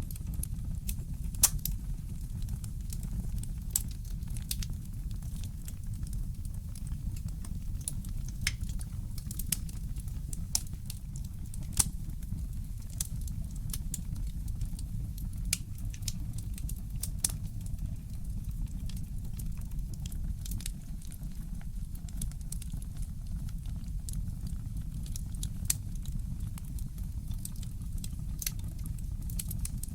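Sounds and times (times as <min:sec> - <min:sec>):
fireplace crackling: 0:00.1 - 0:21.2, 0:27.4 - 0:28.7.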